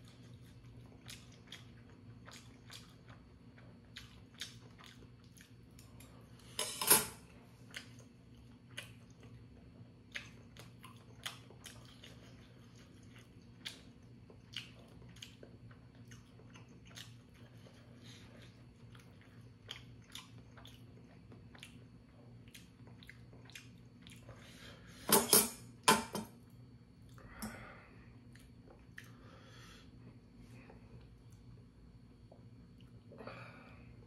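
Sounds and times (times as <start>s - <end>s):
chewing with wet mouth clicks: 0.0s - 6.0s, 7.6s - 24.4s, 28.3s - 29.2s.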